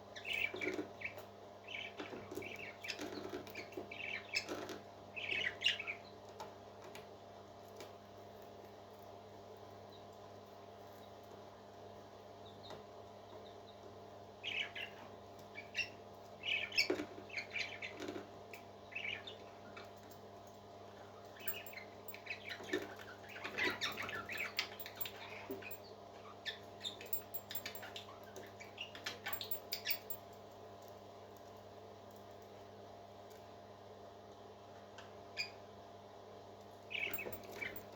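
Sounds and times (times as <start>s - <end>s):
parrot chicks peeping: 0.1s - 7.0s, 12.4s - 20.0s, 20.9s - 30.2s, 35.3s - 35.7s, 36.9s - 37.9s.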